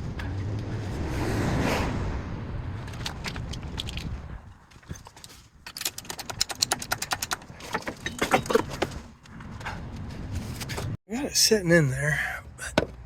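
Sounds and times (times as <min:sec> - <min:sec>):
rapid metallic clicking and rattling: 0:02.9 - 0:09.0.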